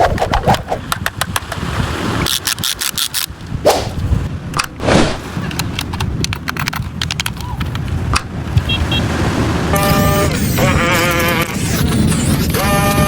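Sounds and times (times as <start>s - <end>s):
swishing scrapes: 3.6s - 5.5s
sharp clicks and knocks: 5.4s - 8.3s.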